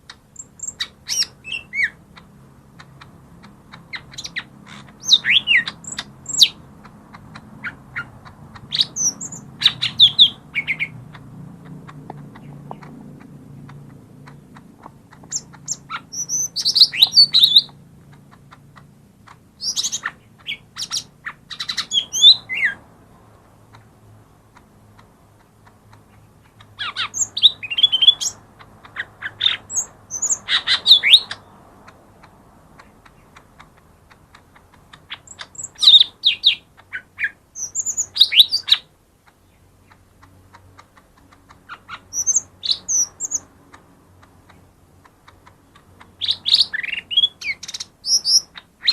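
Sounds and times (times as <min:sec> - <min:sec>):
bird singing: 0:00.0 - 0:48.9.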